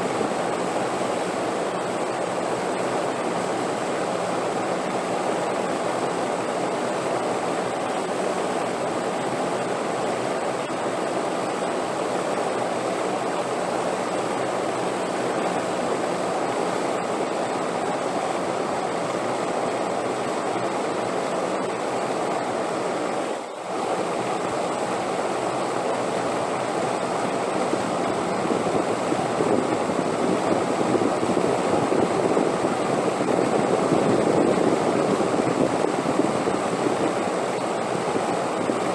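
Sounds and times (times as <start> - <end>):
wind blowing: 27.2 - 38.9.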